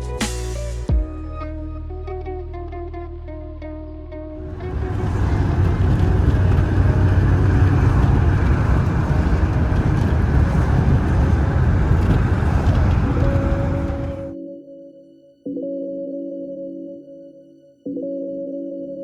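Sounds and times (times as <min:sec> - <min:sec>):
vehicle engine and road noise: 0:04.4 - 0:14.3.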